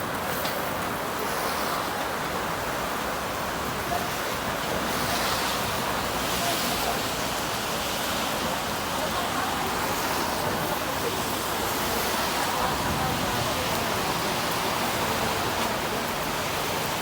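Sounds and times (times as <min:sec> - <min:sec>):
rain rushing: 0:00.0 - 0:17.0.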